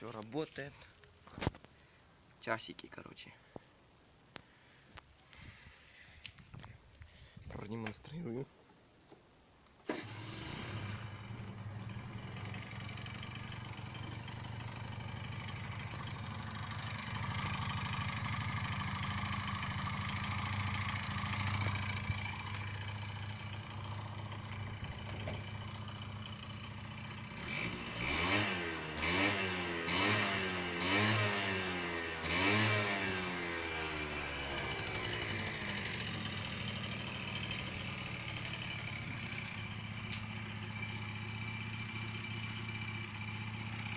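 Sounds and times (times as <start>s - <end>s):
scooter engine idling and revving: 9.9s - 43.9s.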